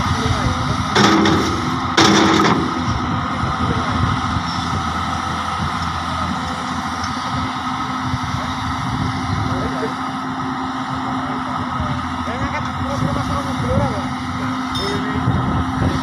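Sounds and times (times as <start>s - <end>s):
excavator diesel engine: 0.0s - 16.0s
loud noisy bursts: 0.0s - 16.0s.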